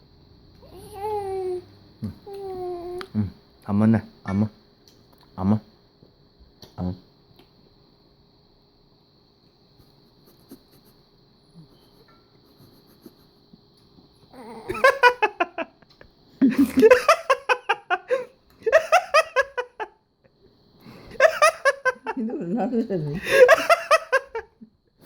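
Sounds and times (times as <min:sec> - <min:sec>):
faint high whine: 0:00.0 - 0:25.0
people laughing: 0:14.7 - 0:15.8, 0:23.2 - 0:24.5.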